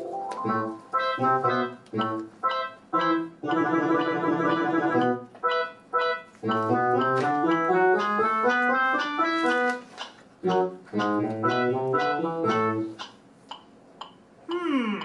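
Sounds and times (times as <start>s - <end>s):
keyboard music: 0.0s - 13.0s.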